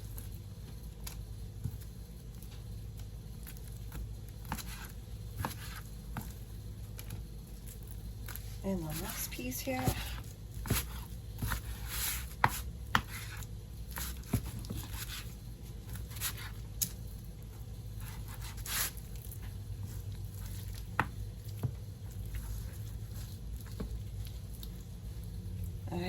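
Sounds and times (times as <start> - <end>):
knife scraping: 18.0 - 19.1.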